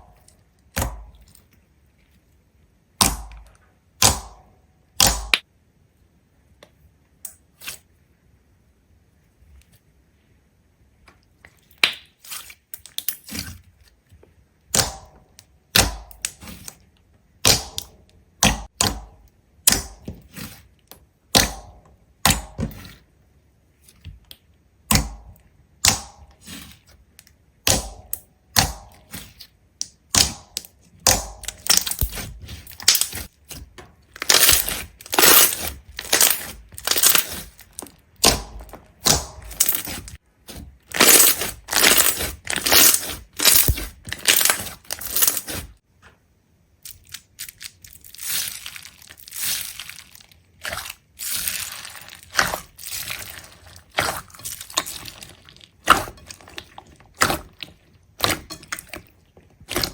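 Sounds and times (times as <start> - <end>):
sharp cracks and crunching clicks: 29.8 - 40.2, 40.8 - 45.8.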